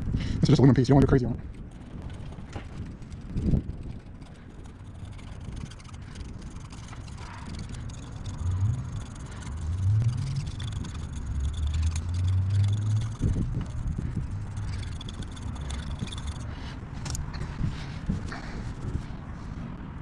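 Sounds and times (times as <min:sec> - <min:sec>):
vehicle engine running: 0:04.3 - 0:19.7.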